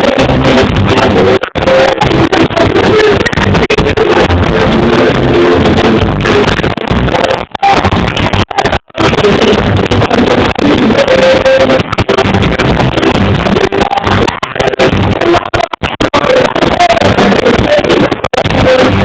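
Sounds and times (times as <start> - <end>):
distorted live reggae band: 0.0 - 19.0.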